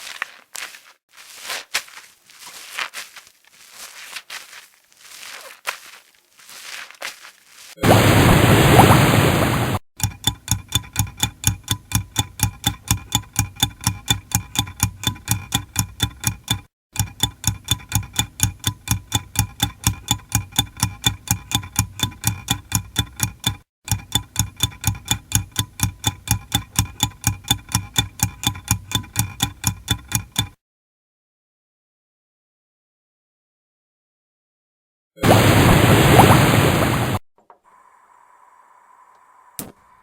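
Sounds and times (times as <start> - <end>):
mechanical kitchen timer ticking: 10.0 - 30.6.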